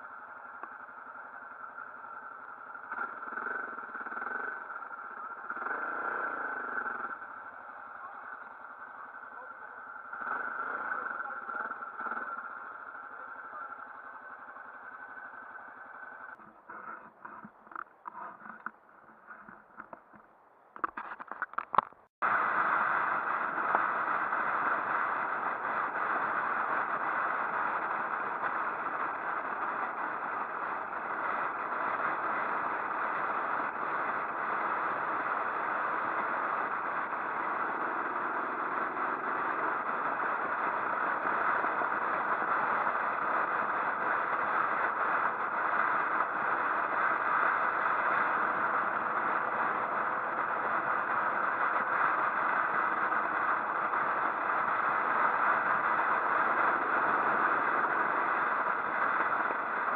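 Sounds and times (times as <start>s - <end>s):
motorcycle engine hum: 0.0s - 59.9s
rush of riding noise: 0.0s - 59.9s
clattering and clicks: 20.8s - 22.0s.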